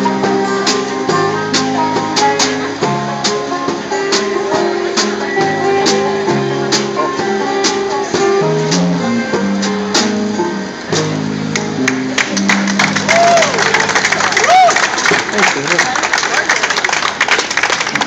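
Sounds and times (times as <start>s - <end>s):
strummed acoustic guitar chords: 0.0s - 13.1s.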